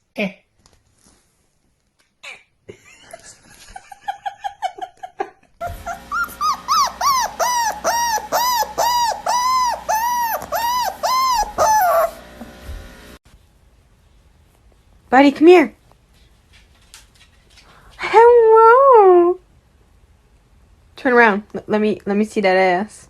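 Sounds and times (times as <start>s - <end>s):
dog whining and yelping: 5.6s - 12.2s.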